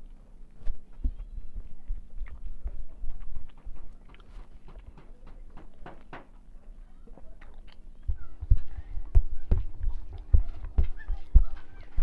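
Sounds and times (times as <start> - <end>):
person chewing food: 0.0 - 5.1, 7.2 - 8.2.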